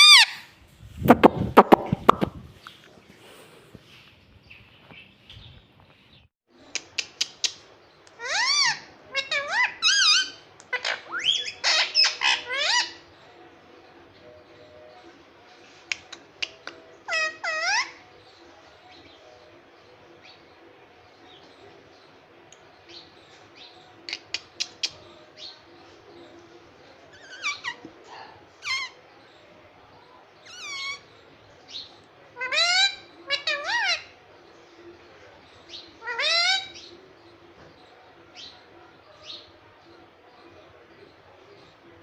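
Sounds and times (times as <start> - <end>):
parrot squawking: 0.0 - 0.5, 8.2 - 13.0, 17.1 - 18.0, 27.1 - 29.0, 30.5 - 31.1, 32.4 - 34.2, 36.0 - 36.8.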